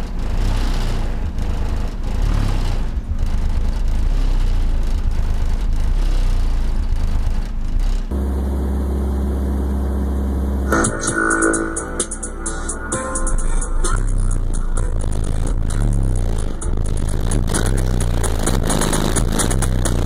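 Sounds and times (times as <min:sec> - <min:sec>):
loud sub-bass music: 0:00.0 - 0:20.0
steady low bass tone: 0:00.0 - 0:20.0
harsh noisy haze: 0:10.6 - 0:20.0.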